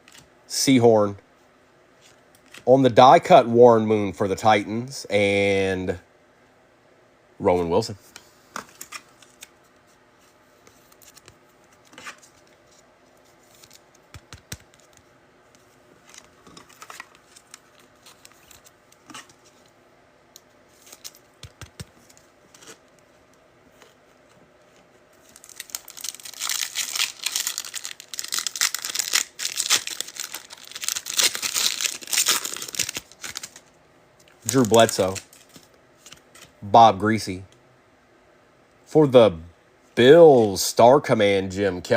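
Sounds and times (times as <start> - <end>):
foil pack tearing and crinkling: 25.3 - 33.6, 34.5 - 36.2.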